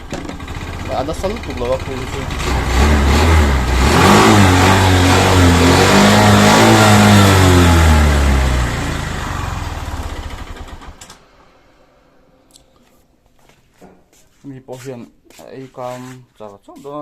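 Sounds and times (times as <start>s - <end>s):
scooter engine revving: 0.0s - 11.7s.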